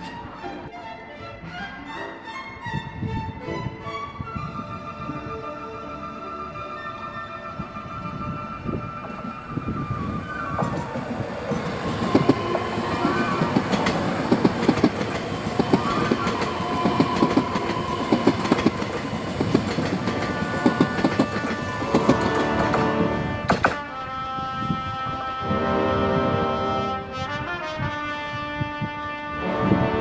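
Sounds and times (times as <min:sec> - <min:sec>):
train wheels clickety-clack: 0:10.4 - 0:23.9.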